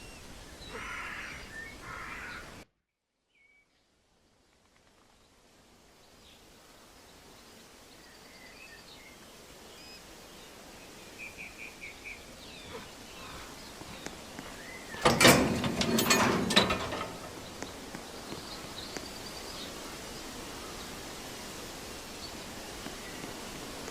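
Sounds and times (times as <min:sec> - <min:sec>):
outdoor background noise: 0:00.0 - 0:23.9
birds chirping: 0:11.3 - 0:21.0.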